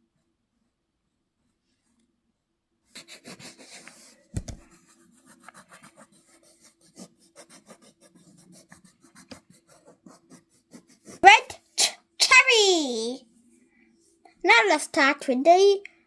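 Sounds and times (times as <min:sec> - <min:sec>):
pencil scribbling on paper: 0:03.0 - 0:11.9.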